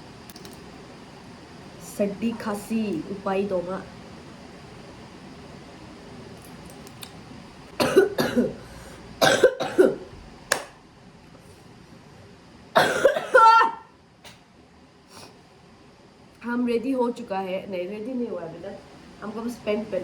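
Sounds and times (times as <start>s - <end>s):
woman coughing: 7.8s - 8.6s, 9.2s - 10.1s, 12.8s - 13.9s.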